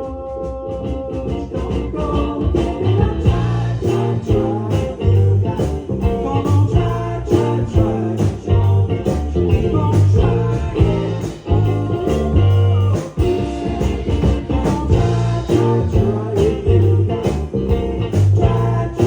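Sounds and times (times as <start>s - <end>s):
bass guitar: 0.0s - 19.0s
electric guitar: 0.0s - 19.0s
person singing: 0.0s - 19.0s
drum beat: 0.9s - 19.0s.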